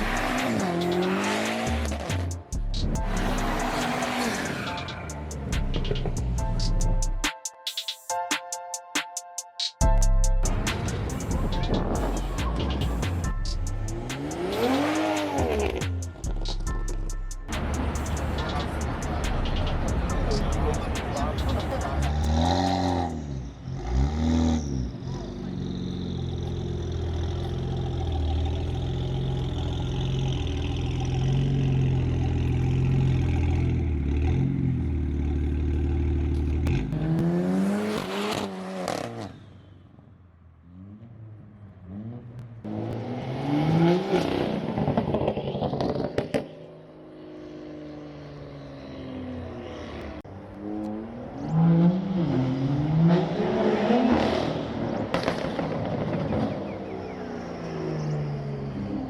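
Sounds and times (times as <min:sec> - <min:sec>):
cars accelerating past: 0:00.0 - 0:06.4, 0:10.5 - 0:16.7, 0:17.5 - 0:40.0, 0:40.6 - 0:59.0
car engines running: 0:00.0 - 0:07.2, 0:10.4 - 0:40.0.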